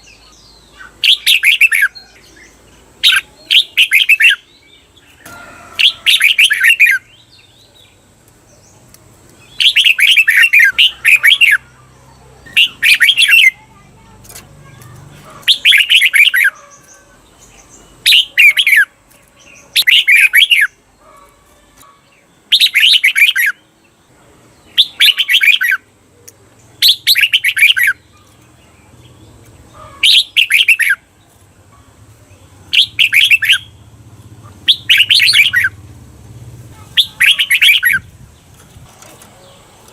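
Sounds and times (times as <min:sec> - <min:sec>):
bird warbling song: 0:00.0 - 0:39.9.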